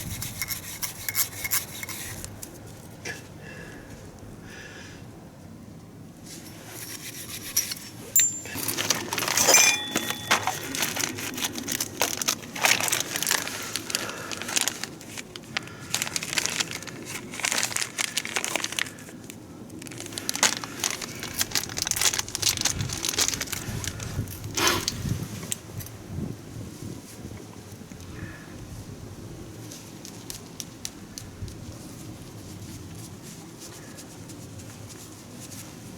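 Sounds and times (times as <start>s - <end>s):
rustling: 6.2s - 19.0s
clicks and clinks of tools: 7.6s - 11.6s.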